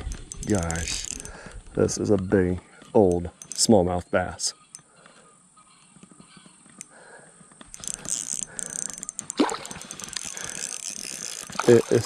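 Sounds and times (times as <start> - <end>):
fishing reel clicking and whirring: 0.0 - 1.4, 3.3 - 3.8, 7.7 - 12.0.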